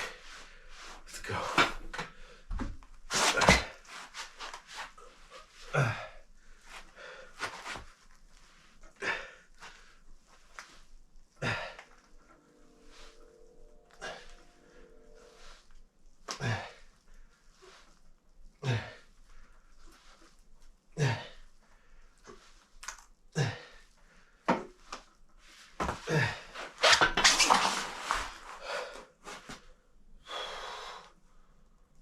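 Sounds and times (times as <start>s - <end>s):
man huffing forceful breaths: 8.9s - 10.0s, 11.4s - 15.4s, 16.4s - 16.9s
man straining exhale: 9.0s - 9.5s, 12.5s - 15.4s.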